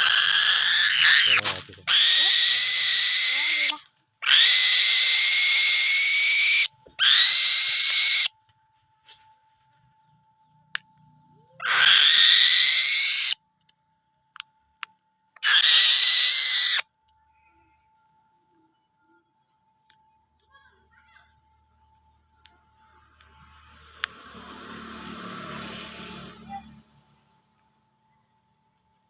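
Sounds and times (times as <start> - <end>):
falcon screeching: 0.0 - 8.4, 11.6 - 13.4, 15.4 - 16.9.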